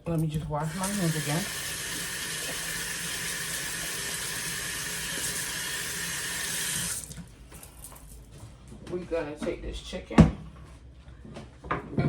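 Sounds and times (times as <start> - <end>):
faucet running: 0.2 - 7.2.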